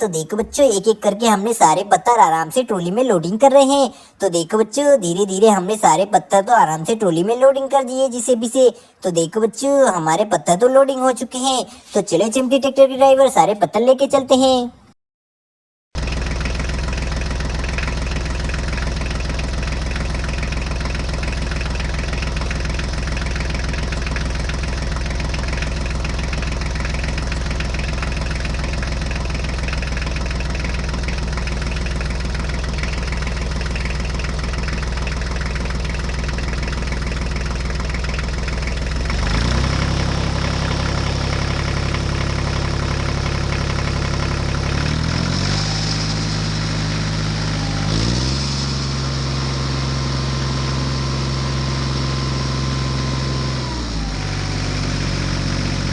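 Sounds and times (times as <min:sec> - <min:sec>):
diesel tractor engine chugging: 0:16.0 - 0:48.2.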